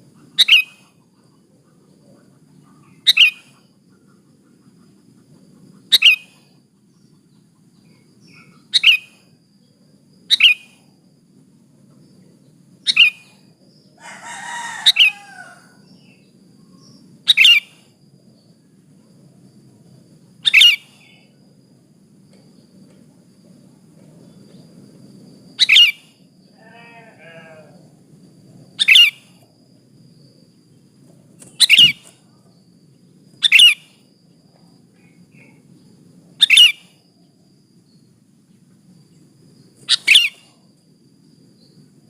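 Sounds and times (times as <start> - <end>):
bird short sharp high calls: 31.6 - 32.1, 33.4 - 33.9.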